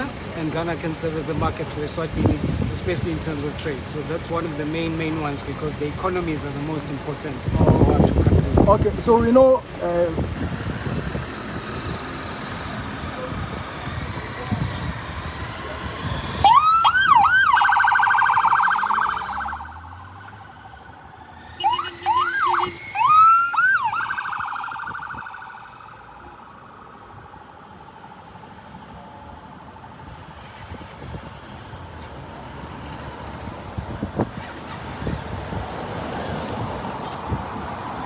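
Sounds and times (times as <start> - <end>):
emergency vehicle siren: 10.4 - 33.5.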